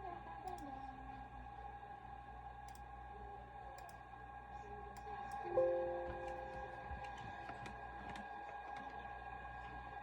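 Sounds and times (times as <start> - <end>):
faint steady hum: 0.0 - 8.2
chime-like musical note: 5.5 - 7.0.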